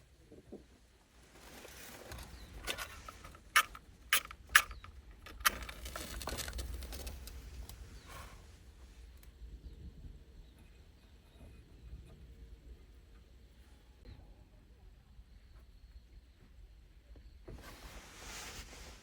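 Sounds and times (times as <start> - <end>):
soft rustling: 0.3 - 4.1, 17.5 - 19.0.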